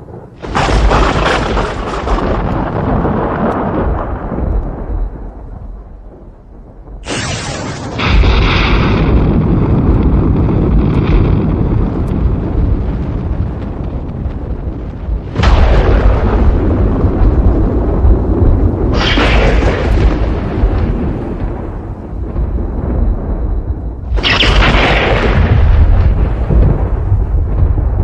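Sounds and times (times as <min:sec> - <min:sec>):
thunder cracks and rumbling: 0:00.0 - 0:28.0.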